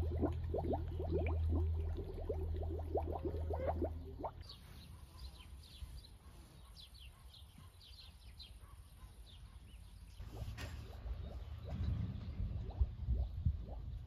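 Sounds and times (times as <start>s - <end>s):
small birds chirping: 3.2s - 14.0s
low hum with rattling: 10.2s - 14.0s.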